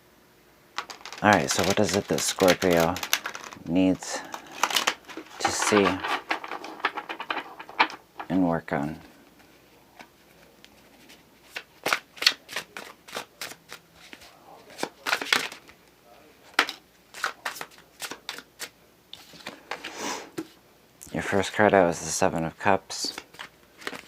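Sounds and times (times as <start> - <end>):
cards snapping while shuffled: 0.8 - 3.6, 11.5 - 15.6, 16.6 - 18.7
card rustle: 0.8 - 15.8, 16.5 - 19.9, 23.0 - 24.0.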